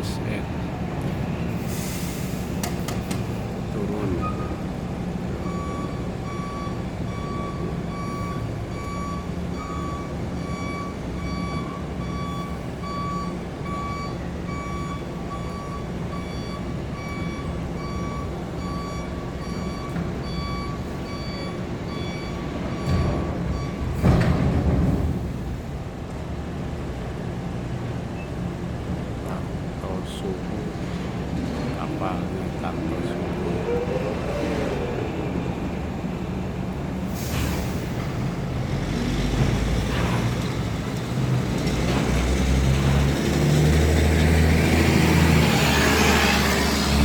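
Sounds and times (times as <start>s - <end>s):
reverse alarm beeping: 5.4s - 24.0s
diesel engine running: 25.1s - 47.0s.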